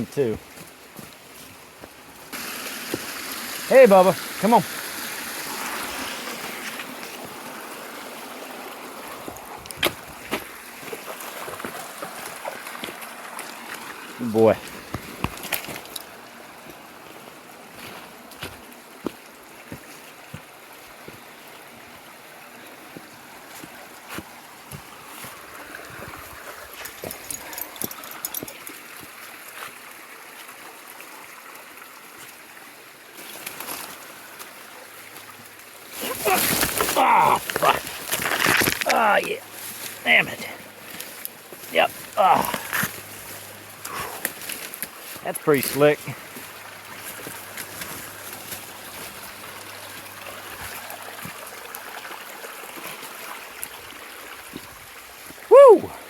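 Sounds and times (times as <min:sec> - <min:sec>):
mountain stream rushing: 0:00.0 - 0:56.0
footsteps in brush: 0:00.3 - 0:03.2, 0:09.2 - 0:14.0, 0:14.6 - 0:21.2, 0:23.0 - 0:29.8, 0:35.9 - 0:51.8.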